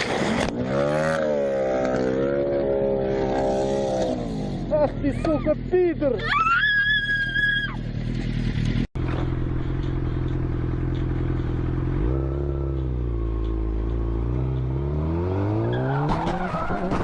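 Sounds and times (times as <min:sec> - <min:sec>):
vehicle engine accelerating: 0:07.6 - 0:17.0.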